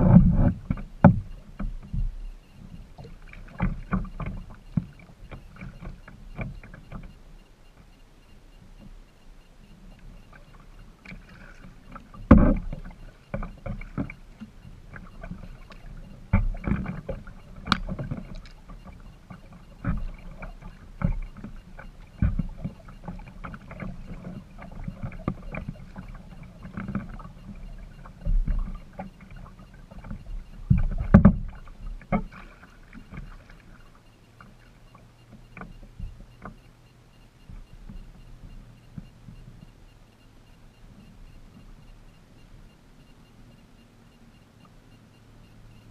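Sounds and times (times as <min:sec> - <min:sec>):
paddle knocking against hull: 0:00.0 - 0:07.8, 0:10.0 - 0:36.6
paddle strokes and water splashes: 0:00.0 - 0:45.9.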